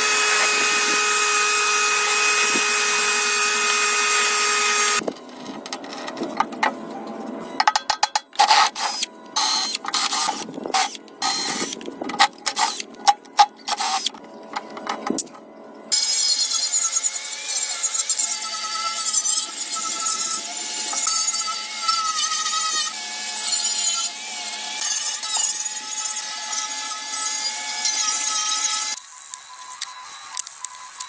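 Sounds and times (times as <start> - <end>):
power tool running with whine: 0.0 - 5.0.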